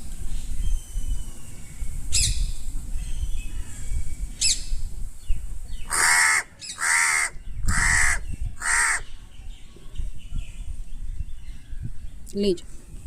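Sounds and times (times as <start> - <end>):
crow cawing: 5.9 - 9.0.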